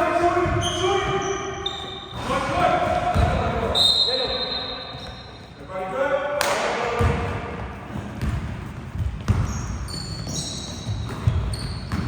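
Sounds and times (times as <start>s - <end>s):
sneakers squeaking on floor: 0.2s - 6.0s, 6.9s - 12.0s
basketball bouncing: 2.6s - 3.6s, 6.5s - 12.0s.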